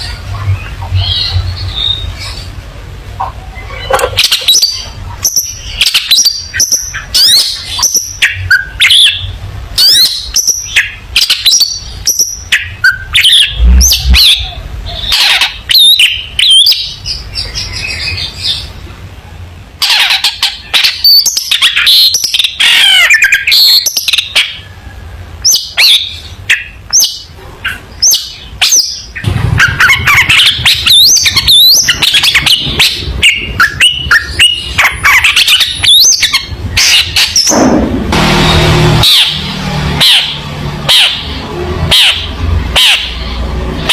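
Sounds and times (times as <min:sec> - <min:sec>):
bird singing chirps and whistles: 0:00.5 - 0:02.5, 0:03.6 - 0:18.7, 0:25.4 - 0:37.6.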